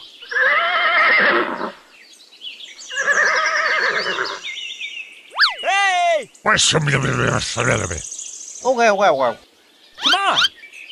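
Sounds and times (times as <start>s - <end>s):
horse whinnying: 0.3s - 1.8s, 2.9s - 4.4s.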